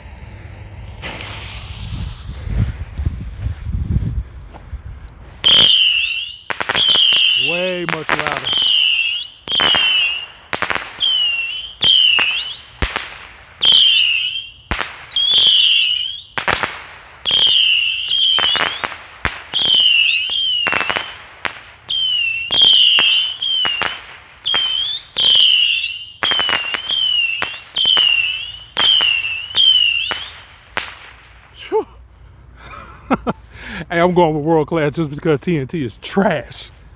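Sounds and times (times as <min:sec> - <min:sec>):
rockets launching with sharp pops: 0:00.0 - 0:03.8, 0:05.4 - 0:31.7
shrill falling whistle: 0:05.4 - 0:07.6, 0:08.4 - 0:10.4, 0:11.0 - 0:12.8, 0:13.6 - 0:16.4, 0:17.3 - 0:18.9, 0:19.6 - 0:21.1, 0:21.9 - 0:30.4.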